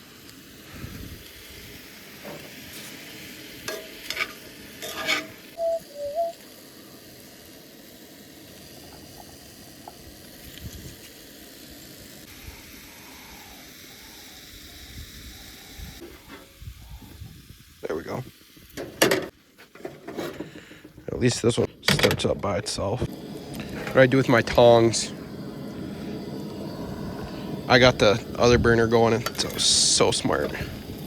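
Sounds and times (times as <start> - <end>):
food sizzling in a frying pan: 0.0 - 19.4, 22.7 - 31.0.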